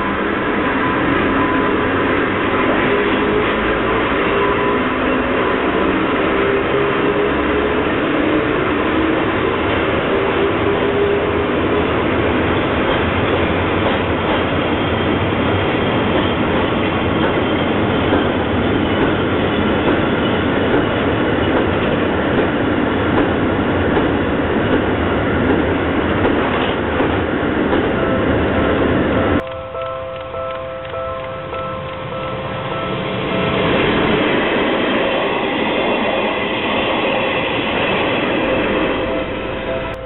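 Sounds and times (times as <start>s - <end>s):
train wheels rumbling on rails: 0.0s - 40.0s
clickety-clack over rail joints: 12.2s - 28.2s.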